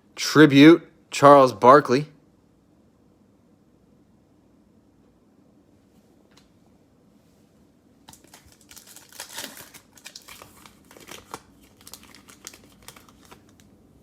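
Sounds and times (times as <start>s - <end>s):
plastic wrapper tearing and crinkling: 8.1s - 13.8s.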